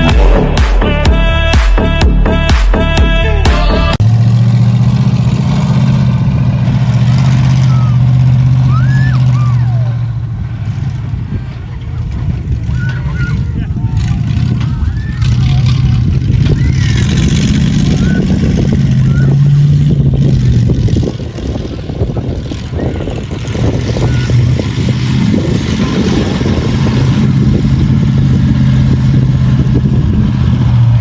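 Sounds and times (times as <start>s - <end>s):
large vehicle engine rumbling: 0.0s - 31.0s.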